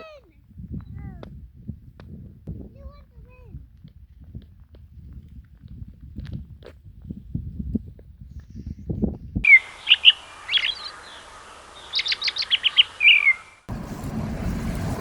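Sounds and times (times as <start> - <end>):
wind rumble on microphone: 0.0 - 9.5, 13.7 - 15.0
songbird chirping: 9.4 - 13.7.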